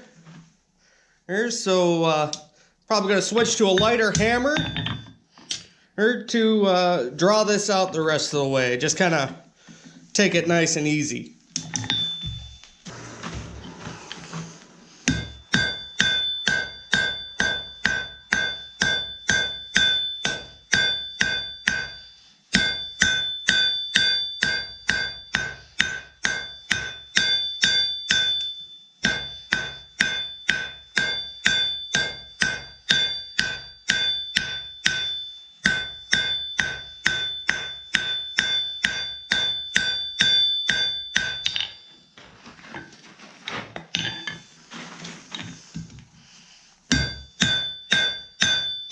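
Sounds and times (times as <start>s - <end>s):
hammer striking steel on anvil: 3.5s - 5.2s, 11.6s - 12.8s, 15.1s - 41.9s, 46.9s - 48.9s.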